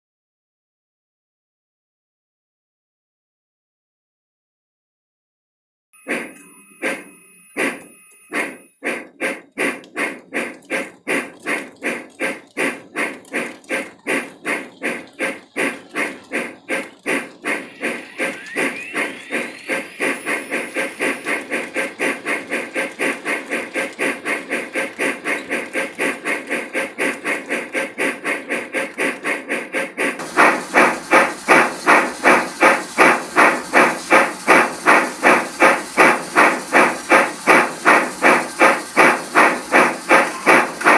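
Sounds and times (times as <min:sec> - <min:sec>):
bell ringing: 0:06.0 - 0:08.8
steam locomotive chuffing: 0:06.0 - 0:40.9.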